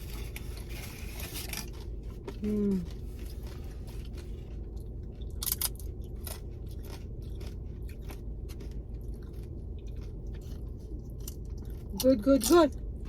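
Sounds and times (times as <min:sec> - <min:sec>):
chewing crunchy chips: 0:00.0 - 0:13.0.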